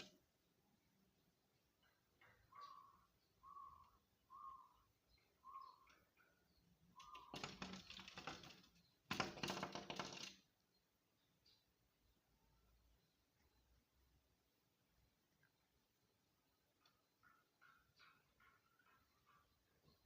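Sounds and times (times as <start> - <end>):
bird chirping: 0.0 - 9.6, 10.6 - 20.0
bird tapping and fluttering at window: 5.9 - 10.7, 16.6 - 20.0.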